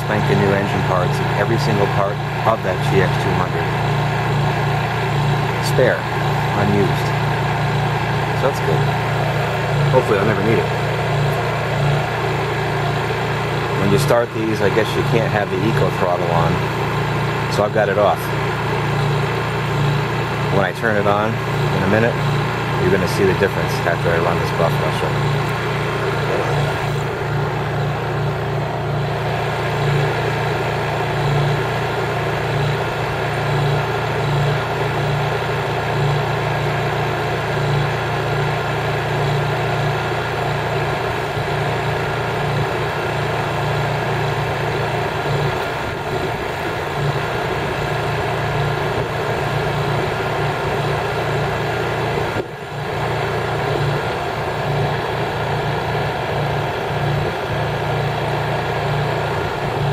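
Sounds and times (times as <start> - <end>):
generator engine humming: 0.0 - 59.9.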